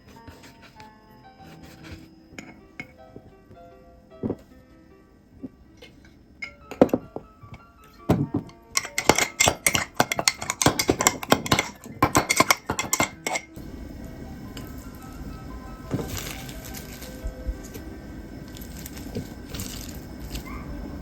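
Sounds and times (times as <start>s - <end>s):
background music: 0.0s - 21.0s
utensils clinking against dishes: 1.5s - 3.3s, 5.8s - 13.7s, 15.9s - 17.8s, 18.5s - 20.8s.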